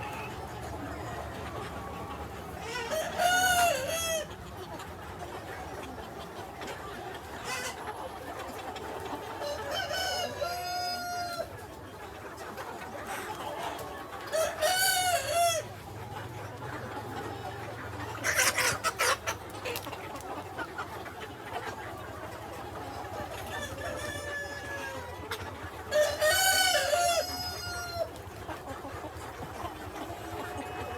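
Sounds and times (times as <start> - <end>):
chickens clucking: 0.0 - 30.9.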